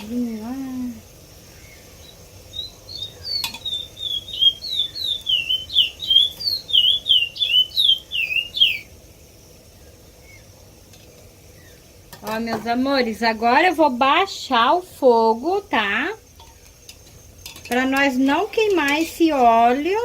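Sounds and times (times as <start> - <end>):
small bird chirping: 0.0 - 10.8, 11.4 - 12.0.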